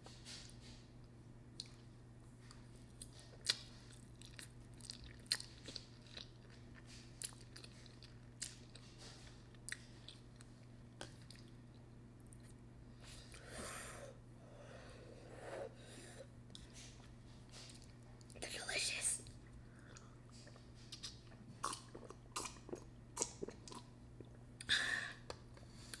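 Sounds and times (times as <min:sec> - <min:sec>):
faint low hum: 0:00.0 - 0:26.0
wet chewing clicks and smacks: 0:02.5 - 0:12.6, 0:19.4 - 0:24.4.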